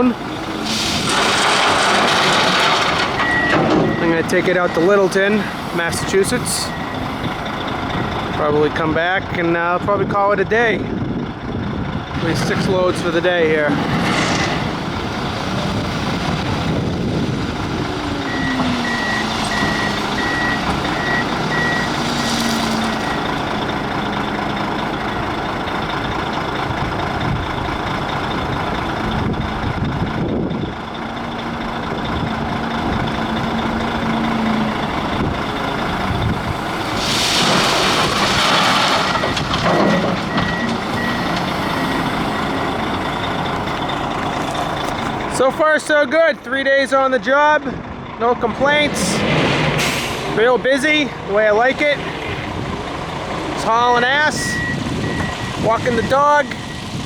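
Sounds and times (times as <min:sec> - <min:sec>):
heavy diesel machinery running: 0:00.0 - 0:57.0
backup alarm beeping: 0:03.2 - 0:07.9, 0:17.9 - 0:23.4, 0:40.3 - 0:43.4, 0:53.8 - 0:57.0.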